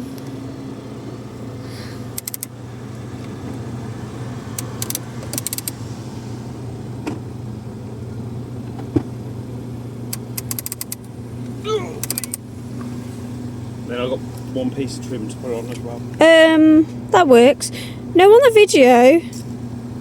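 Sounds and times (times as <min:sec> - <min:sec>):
car running with low hum: 0:00.0 - 0:20.0
rapid small clicks: 0:02.2 - 0:02.5, 0:04.6 - 0:05.8, 0:10.1 - 0:11.1, 0:12.0 - 0:12.4.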